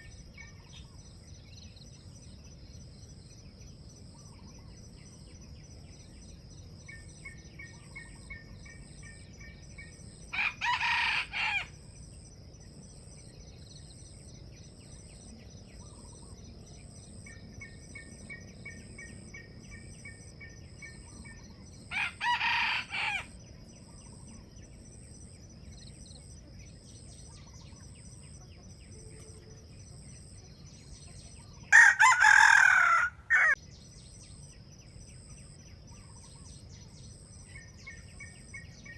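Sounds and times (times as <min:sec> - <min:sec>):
roosters crowing: 0:10.3 - 0:11.8, 0:21.9 - 0:23.4, 0:31.7 - 0:33.6
small bird chirping: 0:23.0 - 0:31.7.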